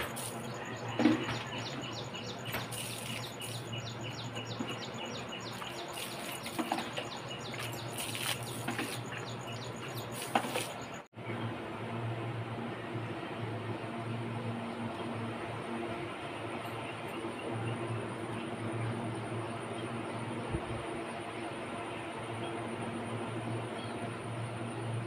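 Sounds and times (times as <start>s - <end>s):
water splashing from a bucket: 5.5s - 11.0s.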